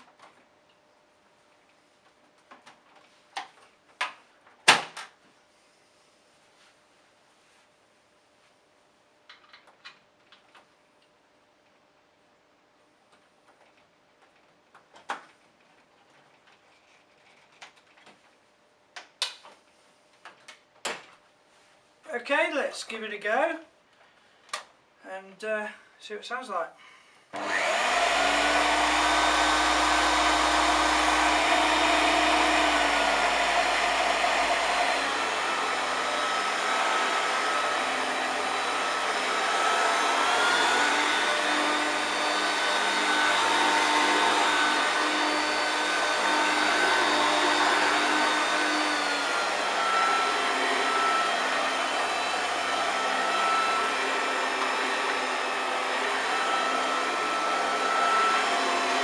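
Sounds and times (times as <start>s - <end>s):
vacuum cleaner motor whine: 27.4s - 59.0s.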